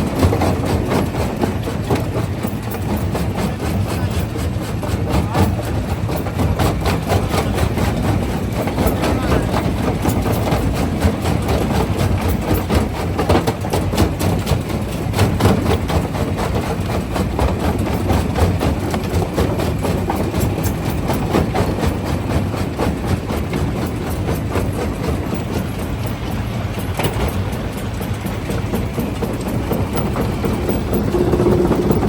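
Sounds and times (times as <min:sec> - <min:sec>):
heavy machine drone: 0:17.9 - 0:32.0.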